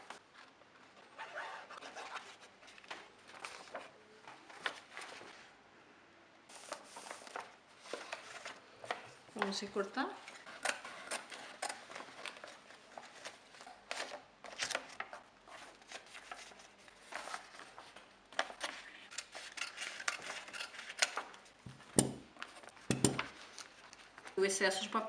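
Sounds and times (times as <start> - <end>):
paper handling: 1.7 - 5.5, 6.5 - 9.6, 10.2 - 24.4
knock: 21.7 - 22.3, 22.9 - 23.3.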